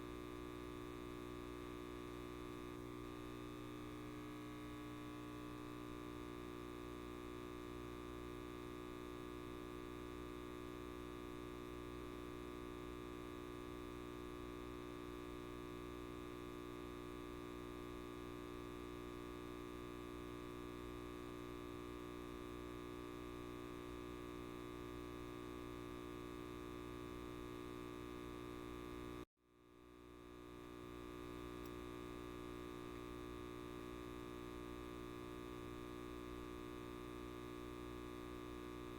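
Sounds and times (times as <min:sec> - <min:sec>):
light bulb buzzing: 0:29.9 - 0:38.9.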